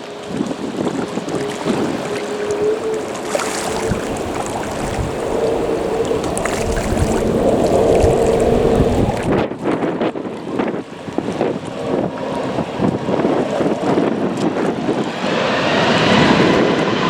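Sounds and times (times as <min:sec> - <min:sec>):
engine droning: 0:00.0 - 0:09.6
wind buffeting microphone: 0:00.0 - 0:17.0.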